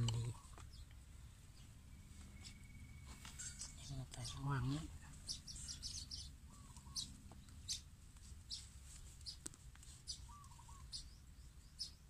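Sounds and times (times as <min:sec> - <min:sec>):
small birds chirping: 0:00.0 - 0:12.0
low warbling bird call: 0:10.1 - 0:11.1.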